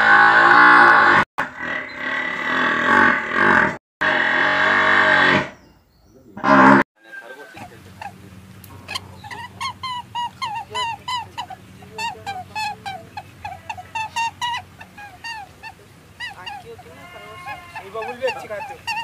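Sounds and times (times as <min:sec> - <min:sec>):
water buffalo mooing: 0:00.0 - 0:05.5, 0:06.4 - 0:19.0
short high animal calls: 0:06.4 - 0:19.0
low steady hum: 0:07.0 - 0:19.0.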